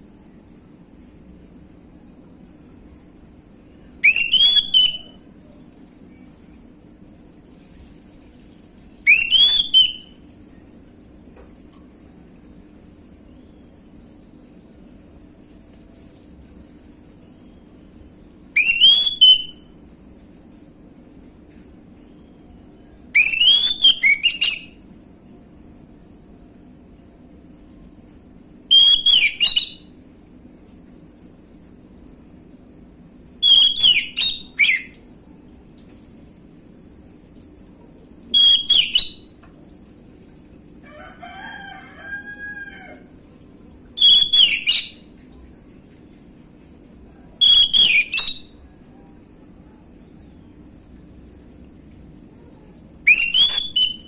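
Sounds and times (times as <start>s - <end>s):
thrush whistled song: 1.5s - 5.2s, 9.1s - 10.1s, 17.5s - 21.1s, 36.6s - 39.2s, 43.6s - 49.3s, 53.1s - 54.0s
bird singing whistled phrases: 4.0s - 5.2s, 9.0s - 10.2s, 18.6s - 19.7s, 23.1s - 24.7s, 28.7s - 29.8s, 33.4s - 34.9s, 38.3s - 39.2s, 44.0s - 45.0s, 47.4s - 48.5s, 53.0s - 54.0s
distant rooster crowing: 40.8s - 43.3s.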